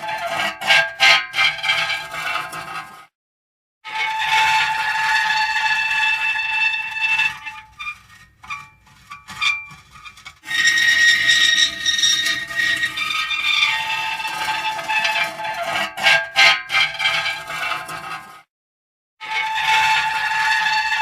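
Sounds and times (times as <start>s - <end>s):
metal creaking and squealing: 0.0s - 3.0s, 3.9s - 18.4s, 19.2s - 21.0s.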